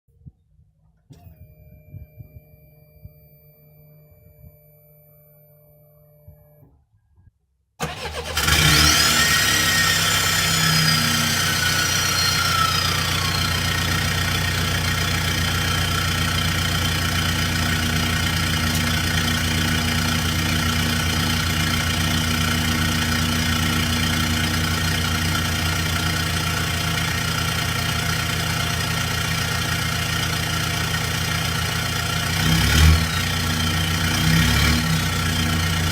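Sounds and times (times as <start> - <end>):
faint whining tones: 0.2 - 7.3
diesel engine starting and idling: 7.8 - 35.9
turbo whistle: 10.4 - 14.1.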